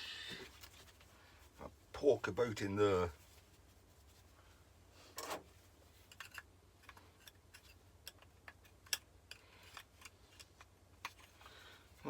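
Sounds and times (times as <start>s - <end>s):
tool clicking and tapping metal: 6.1s - 11.3s.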